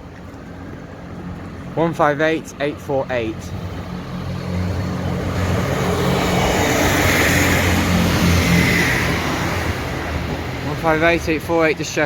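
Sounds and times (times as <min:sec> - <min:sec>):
diesel engine drone: 0:00.0 - 0:12.0.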